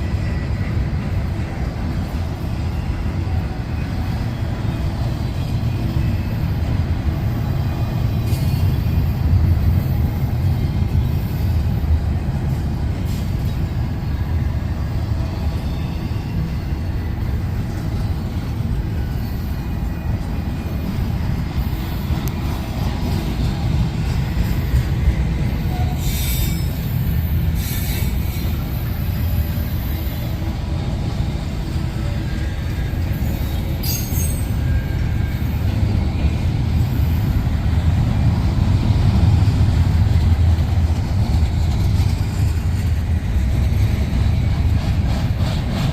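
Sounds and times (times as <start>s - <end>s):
freight train wheels rumbling: 0.0s - 45.9s
high wheel squeals: 13.0s - 31.0s, 31.7s - 37.9s.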